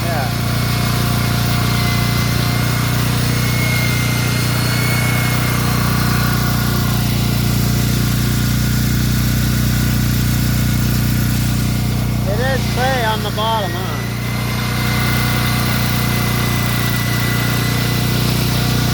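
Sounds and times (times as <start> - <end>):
engine low hum: 0.0 - 18.9
faint high whine: 12.2 - 17.6.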